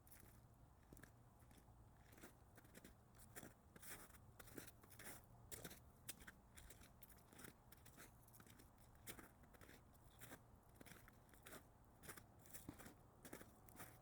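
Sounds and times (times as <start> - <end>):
footsteps crunching in snow: 8.5 - 14.0.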